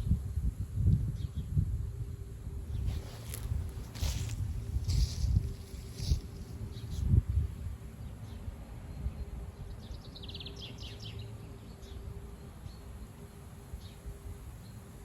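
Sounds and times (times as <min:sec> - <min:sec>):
gusty wind buffeting microphone: 0:00.0 - 0:10.4
faint steady hum: 0:00.0 - 0:15.0.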